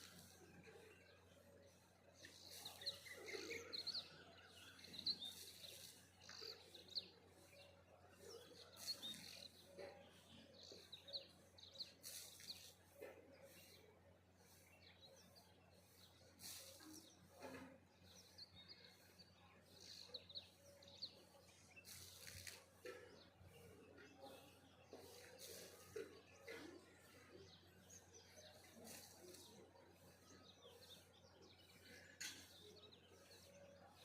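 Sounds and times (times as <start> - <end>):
birds chirping and twittering: 0.0 - 34.0.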